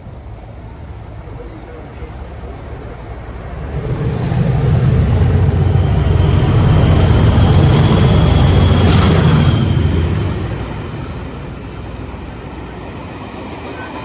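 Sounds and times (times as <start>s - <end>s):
train rumbling past: 0.0s - 14.0s
high whine: 3.0s - 12.2s.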